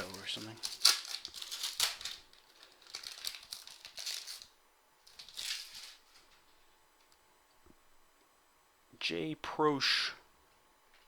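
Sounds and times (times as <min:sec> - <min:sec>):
card pack wrapper crinkling: 0:00.0 - 0:06.5.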